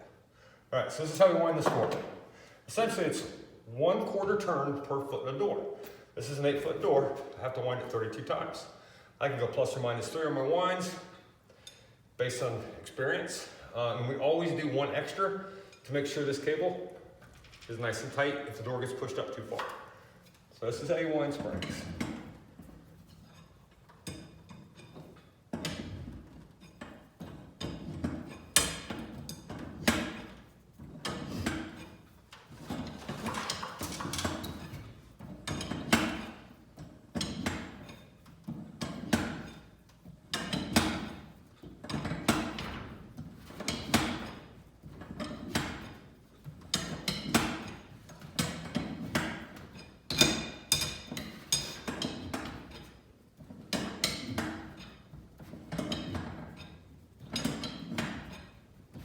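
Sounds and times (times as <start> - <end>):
steel bars clanking in spring cone: 21.3 - 59.0.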